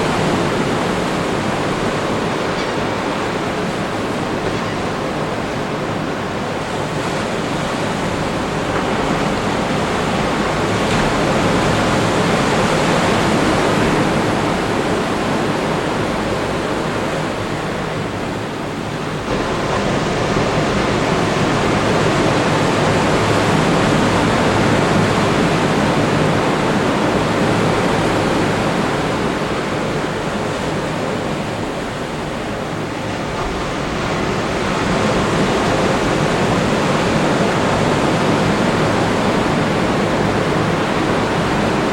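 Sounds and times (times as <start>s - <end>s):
ocean waves breaking on beach: 0.0s - 41.9s.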